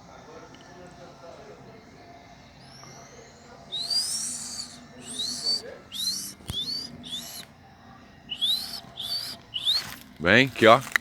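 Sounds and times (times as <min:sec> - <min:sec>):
monkeys whistling calls: 0:02.6 - 0:07.5, 0:08.3 - 0:11.0.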